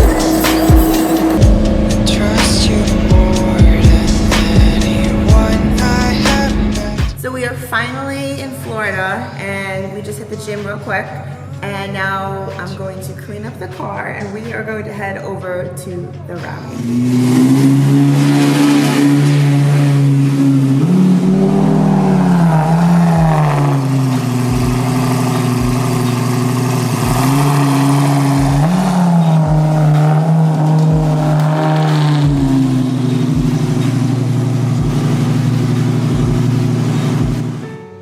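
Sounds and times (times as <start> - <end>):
short low thumps: 0.0 - 7.2, 28.4 - 31.4, 32.2 - 37.6
sports car engine revving: 0.0 - 7.2, 16.7 - 37.7.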